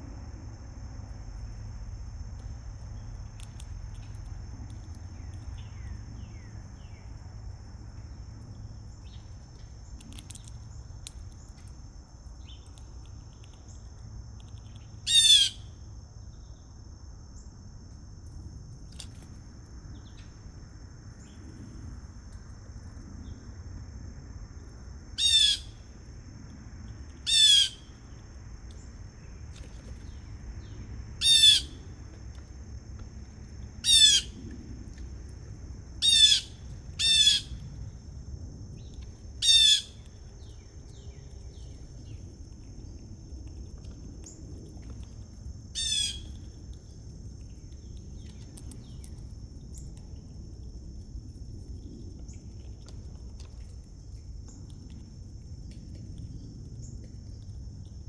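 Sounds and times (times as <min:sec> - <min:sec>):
bird giving harsh calls: 0:27.3 - 0:27.8, 0:31.2 - 0:31.8, 0:33.9 - 0:34.3, 0:36.0 - 0:37.5.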